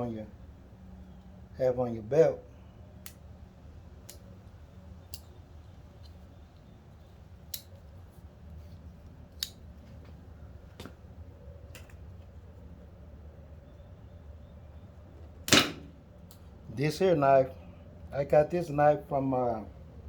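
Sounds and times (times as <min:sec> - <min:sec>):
low steady hum: 0:00.0 - 0:20.0
knife snipping zip ties: 0:09.3 - 0:09.6.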